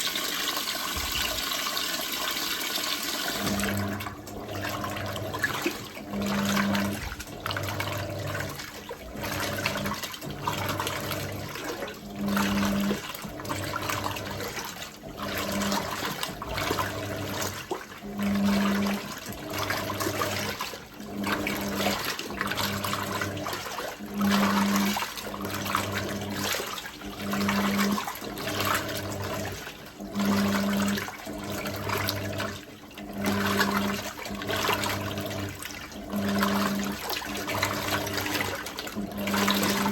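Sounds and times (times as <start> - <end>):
washing machine motor pulsing: 0.0 - 39.9
water sloshing: 33.1 - 39.9.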